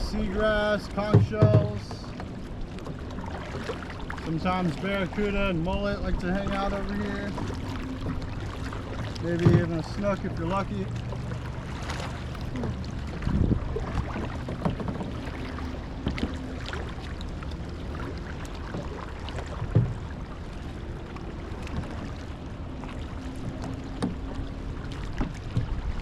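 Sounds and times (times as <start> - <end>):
kayak paddles splashing: 0.0 - 26.0
low hum: 0.0 - 26.0
short knocks: 1.1 - 1.8, 9.1 - 9.9.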